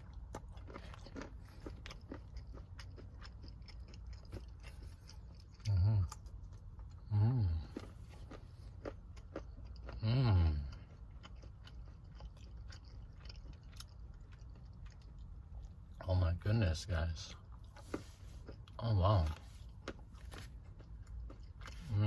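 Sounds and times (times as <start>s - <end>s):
person chewing crunchy chocolate: 0.0s - 22.0s
person humming mmm: 5.6s - 6.2s, 7.0s - 7.8s, 10.0s - 10.8s.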